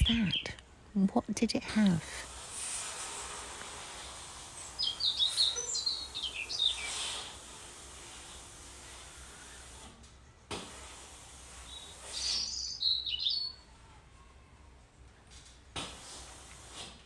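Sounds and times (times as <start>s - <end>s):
wild birds calling: 0.0s - 0.6s, 4.4s - 7.4s, 11.7s - 13.6s.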